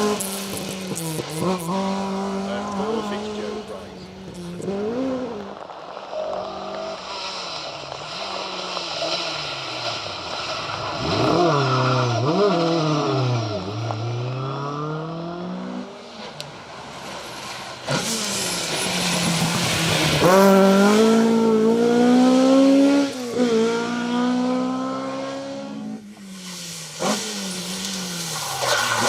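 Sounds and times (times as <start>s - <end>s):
rally car engine revving: 0.0s - 29.0s
sudden rush of noise: 26.1s - 29.0s.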